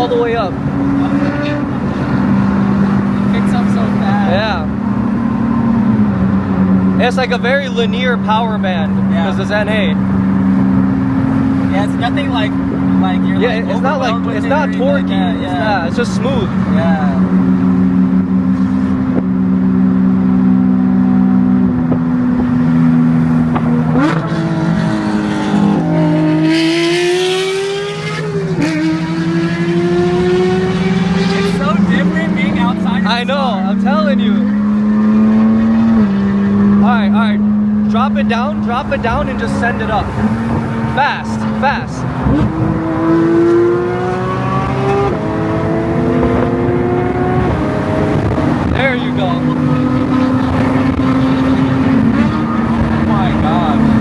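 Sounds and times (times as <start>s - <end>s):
car engine revving from cabin: 8.7s - 54.0s.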